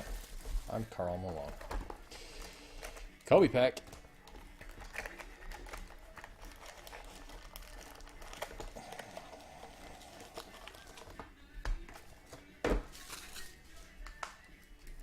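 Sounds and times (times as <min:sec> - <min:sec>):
card pack wrapper crinkling: 0:04.5 - 0:11.2.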